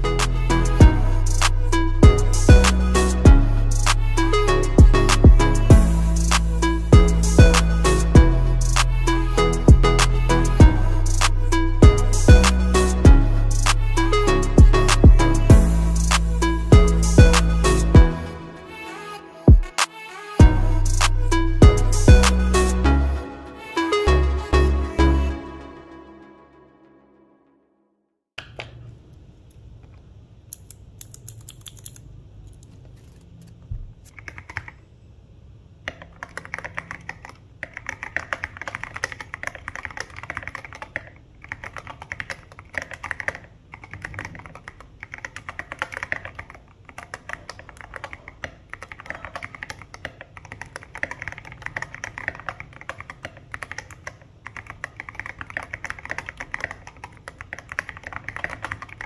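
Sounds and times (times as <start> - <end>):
mechanical keyboard typing: 30.6 - 33.2, 34.1 - 34.8, 35.9 - 59.0.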